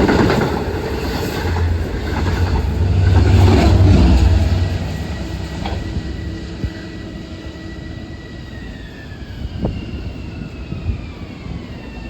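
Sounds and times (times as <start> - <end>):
electric train rumbling on track: 0.0 - 12.0
train motor whine: 0.0 - 12.0.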